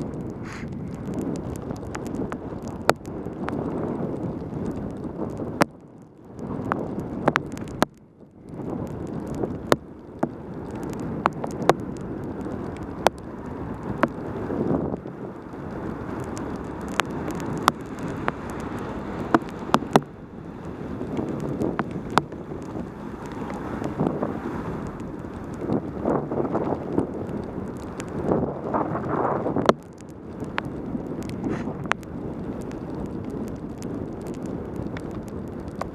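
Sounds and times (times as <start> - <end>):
wind rushing over microphone: 0.0 - 35.9
tyre hiss on wet road: 0.4 - 0.8, 15.7 - 25.0, 31.4 - 31.8.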